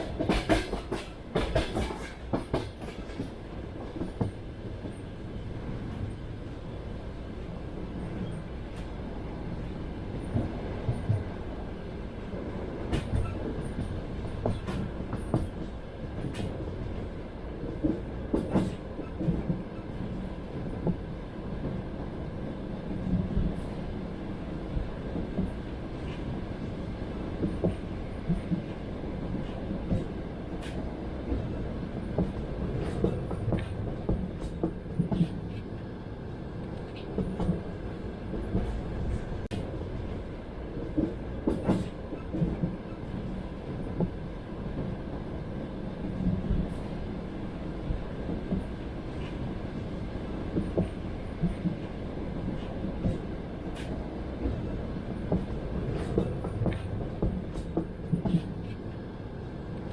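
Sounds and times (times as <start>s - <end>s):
wheels clacking over rail joints: 0.0s - 5.0s
train wheels rumbling on track: 0.0s - 59.9s.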